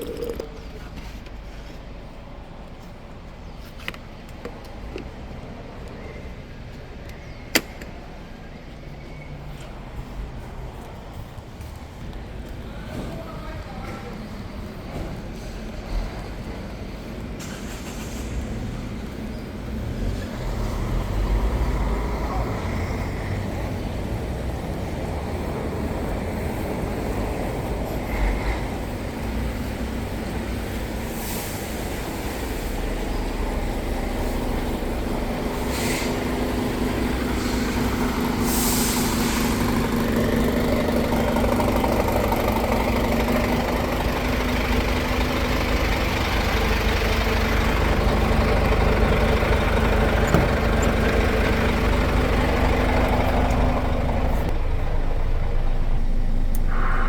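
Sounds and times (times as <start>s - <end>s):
road noise: 0.0s - 57.0s
truck diesel engine: 13.5s - 57.0s
air hisses: 35.6s - 36.4s, 37.4s - 39.7s.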